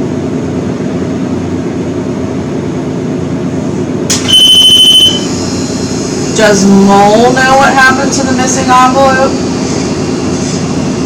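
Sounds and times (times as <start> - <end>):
low hum of room machinery: 0.0 - 11.0
high electronic beep: 4.2 - 5.3.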